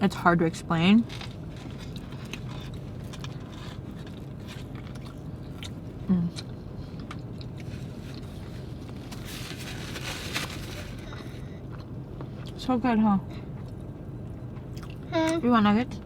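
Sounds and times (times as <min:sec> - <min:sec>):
steady low hum: 0:00.0 - 0:16.0
chewing food: 0:01.2 - 0:08.6, 0:13.6 - 0:15.1
rustle: 0:07.6 - 0:11.0.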